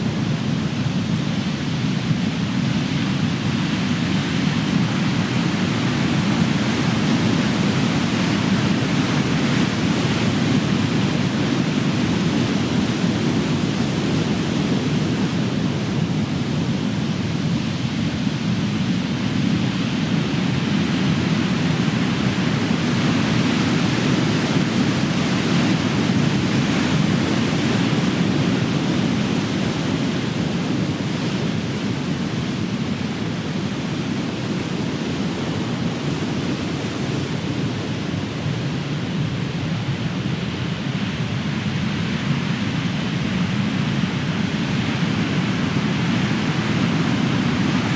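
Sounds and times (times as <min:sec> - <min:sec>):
ocean waves breaking: 0:21.1 - 0:47.9.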